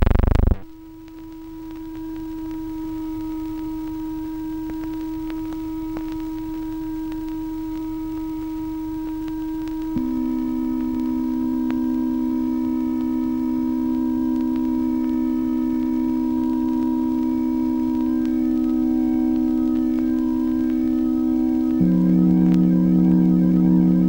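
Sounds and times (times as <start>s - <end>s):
lower held note: 21.6s - 24.0s
held synth tone: 21.8s - 24.0s.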